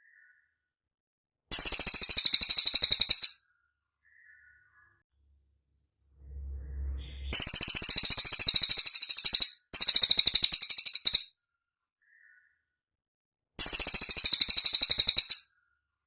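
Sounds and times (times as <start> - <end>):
faint low hum: 6.0 - 8.2.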